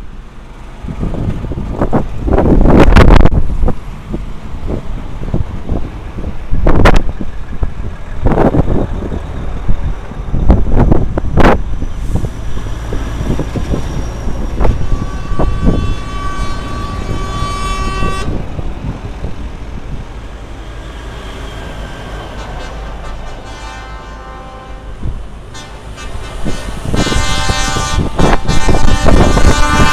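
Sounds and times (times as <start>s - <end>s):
trucks driving past: 0.0s - 29.9s
truck horn: 14.6s - 18.4s, 22.2s - 29.9s.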